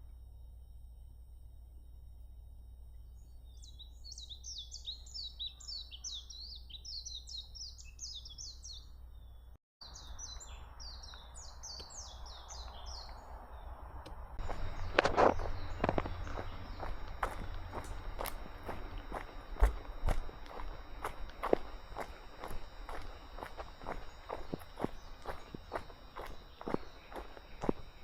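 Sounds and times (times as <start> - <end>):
songbird twittering: 2.9 - 28.0
low rumble: 13.2 - 28.0.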